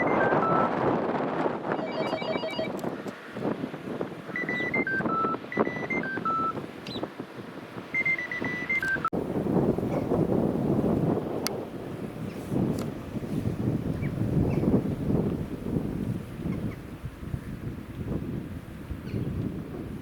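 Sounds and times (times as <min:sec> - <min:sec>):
electronic beeps: 0:00.0 - 0:00.7, 0:01.8 - 0:02.8, 0:04.3 - 0:07.0, 0:07.9 - 0:09.1
electronic ringtone tune: 0:00.0 - 0:00.7, 0:01.8 - 0:02.7, 0:04.4 - 0:06.6, 0:08.0 - 0:09.1
wind rumble on microphone: 0:00.0 - 0:20.0.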